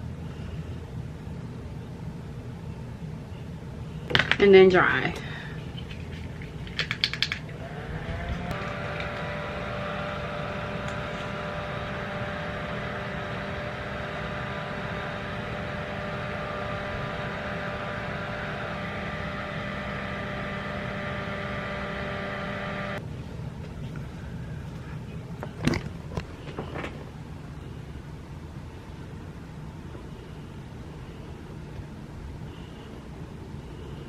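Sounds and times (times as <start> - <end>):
small electric blower running: 7.3 - 23.0.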